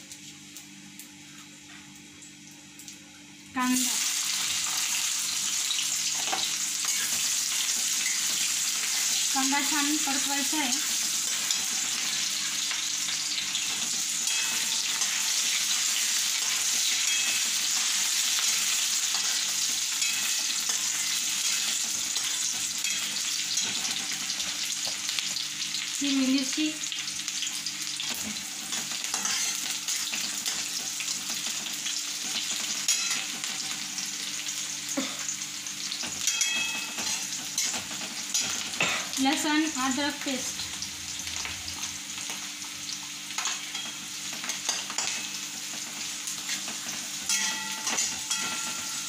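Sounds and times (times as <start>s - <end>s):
onion sizzling in hot oil: 0.0s - 49.0s
spatula scraping a steel pan: 29.1s - 29.6s.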